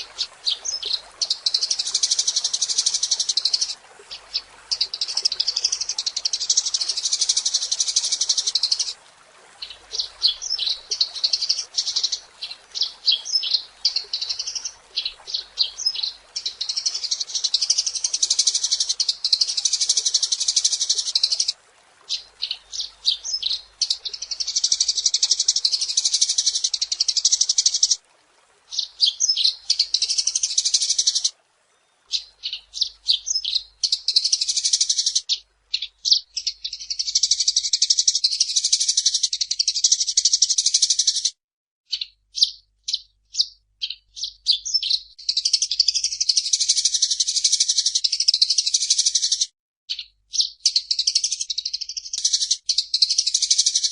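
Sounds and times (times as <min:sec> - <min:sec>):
sparrow chirping: 0:41.9 - 0:53.9.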